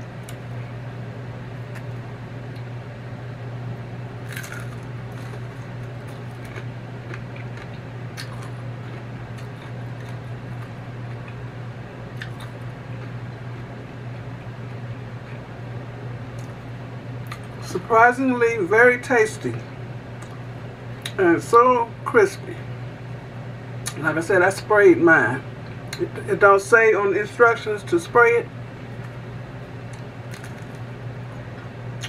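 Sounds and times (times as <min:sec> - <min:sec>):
chewing crispy food crunches: 0:04.2 - 0:11.4, 0:12.1 - 0:13.2, 0:29.9 - 0:30.9.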